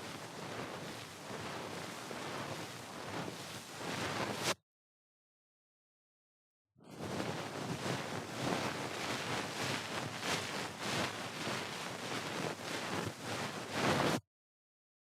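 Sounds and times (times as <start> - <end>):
ear pick scraping microphone: 0.0 - 4.6.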